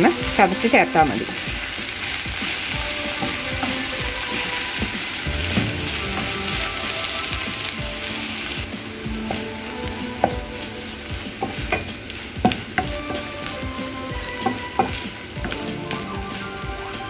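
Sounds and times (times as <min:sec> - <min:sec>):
vegetables sizzling in a pan: 0:00.0 - 0:17.0
spatula tapping and scraping pan: 0:02.3 - 0:06.3, 0:09.2 - 0:16.1.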